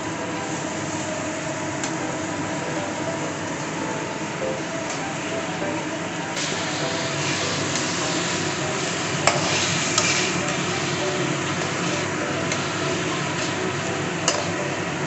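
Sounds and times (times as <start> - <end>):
chicken sizzling in a pan: 6.4 - 15.0.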